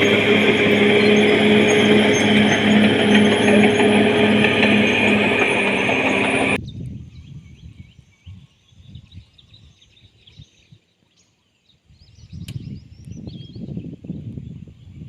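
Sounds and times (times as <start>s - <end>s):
bulldozer diesel engine running: 0.0s - 6.6s
uneven low rumbling: 0.0s - 6.6s.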